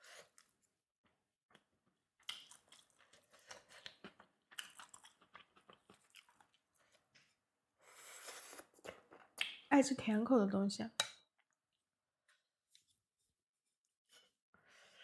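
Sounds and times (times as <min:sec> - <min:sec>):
person chewing food: 0:01.5 - 0:09.7.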